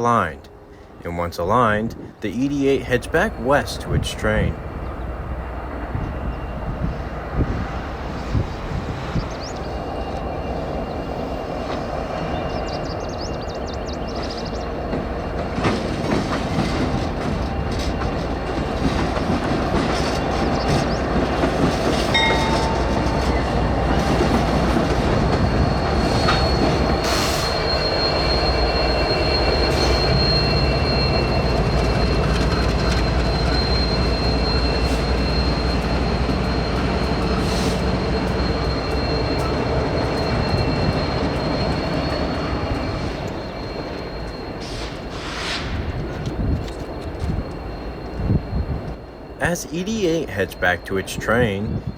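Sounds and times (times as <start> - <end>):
diesel locomotive engine rumble: 0.0 - 51.9
high wheel squeal: 1.6 - 51.9
wheels clacking over rail joints: 14.0 - 47.9.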